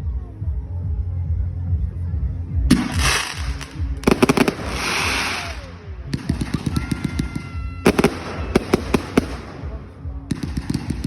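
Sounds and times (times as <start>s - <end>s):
firework hissing burst: 2.7s - 5.8s
firework bangs: 2.7s - 11.0s
firework crackling: 2.7s - 11.0s.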